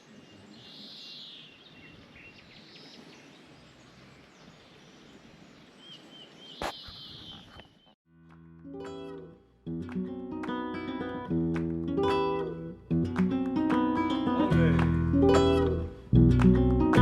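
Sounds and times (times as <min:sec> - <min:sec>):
faint outdoor hiss: 0:00.0 - 0:07.9, 0:08.7 - 0:17.0
birds calling: 0:00.0 - 0:08.0
short bird chirps: 0:05.8 - 0:08.0.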